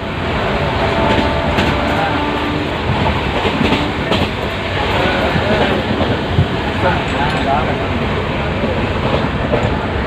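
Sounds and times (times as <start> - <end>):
train rumbling on track: 0.0 - 10.0
wheels clacking over rails: 2.8 - 7.8.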